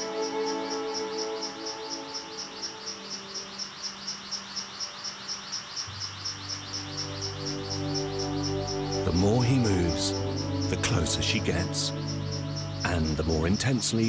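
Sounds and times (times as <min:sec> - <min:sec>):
soundtrack music: 0:06.4 - 0:14.0.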